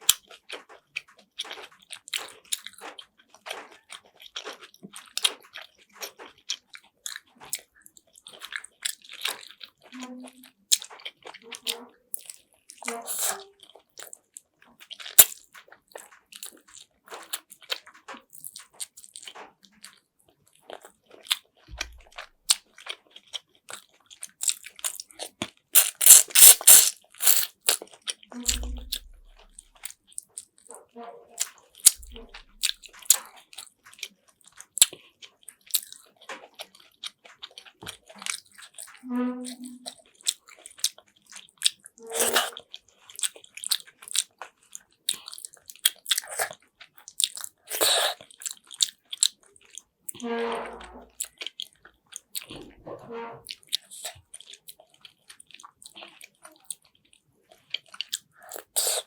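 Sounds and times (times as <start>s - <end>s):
person chewing food: 0.0s - 39.0s, 39.8s - 50.2s, 51.0s - 52.6s, 53.4s - 59.0s
brief hum: 28.4s - 29.4s.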